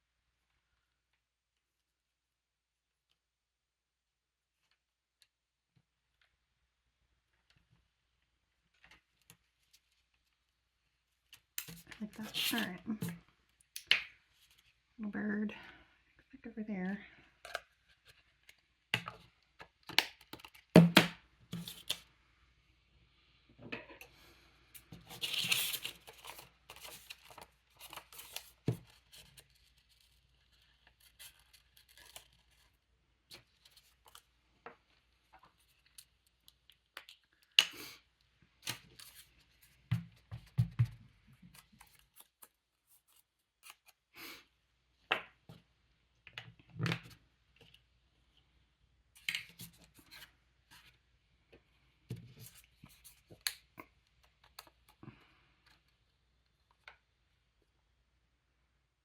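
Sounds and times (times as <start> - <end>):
paper rustling: 25.0 - 32.8.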